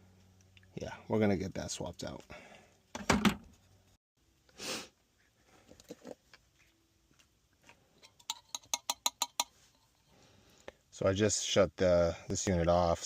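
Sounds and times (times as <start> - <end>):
person sniffing: 4.5 - 5.0.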